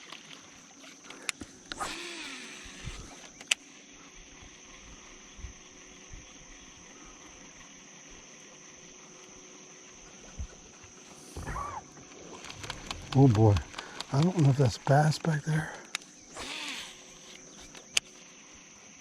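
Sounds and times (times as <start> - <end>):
reel click: 0.0 - 3.8, 12.0 - 18.2
insect drone: 0.0 - 19.0.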